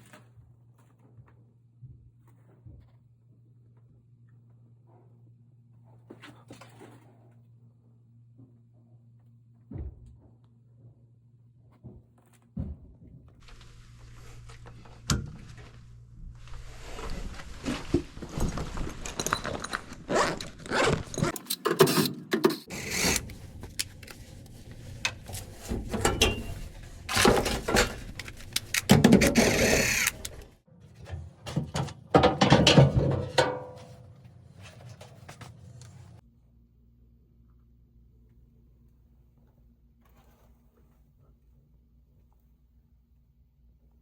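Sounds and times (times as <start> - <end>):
metallic knocks and clatter: 25.1 - 29.4, 31.1 - 34.1.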